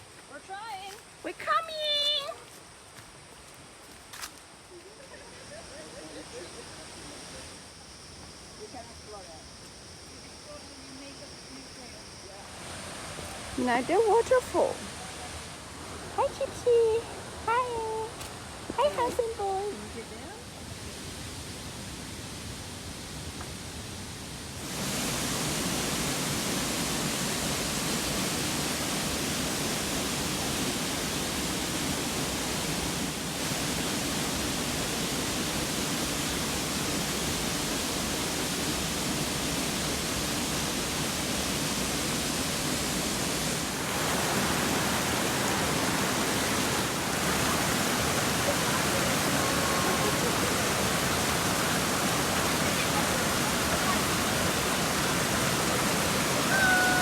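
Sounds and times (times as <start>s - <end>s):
waterfall rushing: 12.5s - 57.0s.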